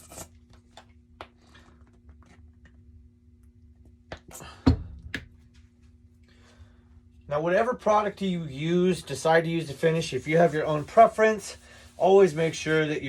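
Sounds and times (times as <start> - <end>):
steady low hum: 0.0 - 13.0
paper towel rubbing wood: 8.9 - 13.0.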